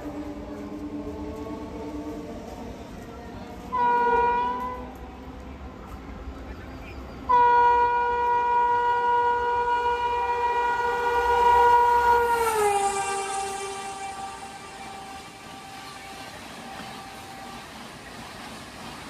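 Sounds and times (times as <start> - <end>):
train rumbling past: 0.0 - 19.0
train horn long blast: 3.6 - 5.2, 7.2 - 18.0.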